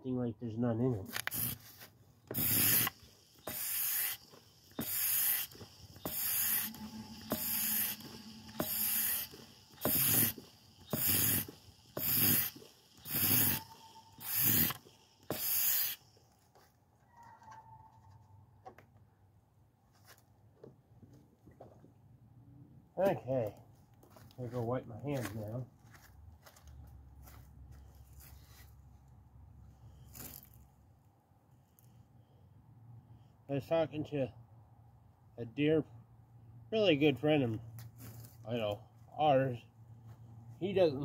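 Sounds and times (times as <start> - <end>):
hand pump rasping strokes: 1.1 - 16.3.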